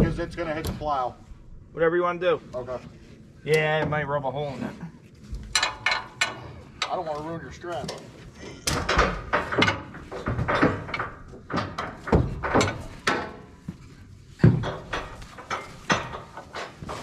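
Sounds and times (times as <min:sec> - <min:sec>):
straps and hooks clanking: 0:05.2 - 0:17.0.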